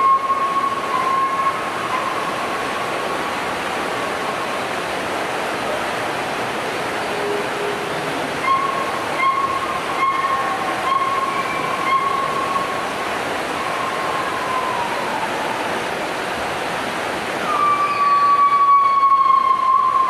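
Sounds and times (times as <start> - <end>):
whistled call: 0.0 - 2.2, 8.4 - 12.8, 17.4 - 20.0
waterfall rushing: 0.0 - 20.0.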